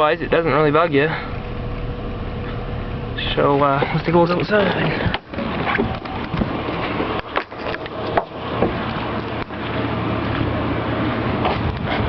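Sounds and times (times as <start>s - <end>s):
truck engine humming: 0.0s - 12.0s.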